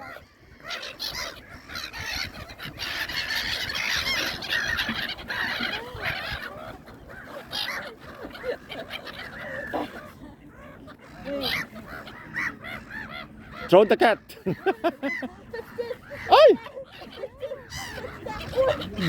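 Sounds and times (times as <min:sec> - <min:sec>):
flock of birds calling: 0:00.0 - 0:19.0.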